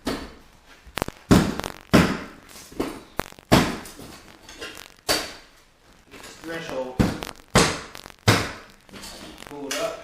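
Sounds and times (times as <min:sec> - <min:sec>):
wood knocking and cracking: 0:00.0 - 0:05.5, 0:06.2 - 0:10.0.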